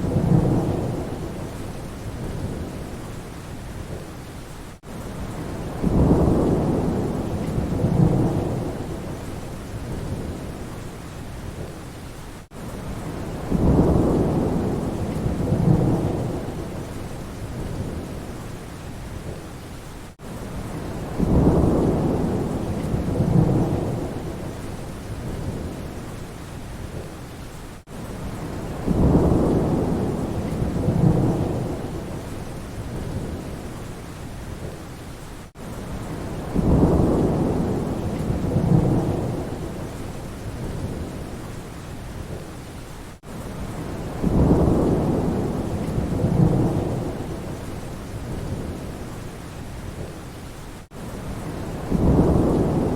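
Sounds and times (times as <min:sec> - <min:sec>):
rolling thunder: 0:00.0 - 0:03.0, 0:05.2 - 0:10.6, 0:12.9 - 0:18.3, 0:20.6 - 0:26.0, 0:27.9 - 0:33.7, 0:35.9 - 0:41.3, 0:43.6 - 0:49.0, 0:51.3 - 0:52.9
steady rain: 0:00.0 - 0:52.9.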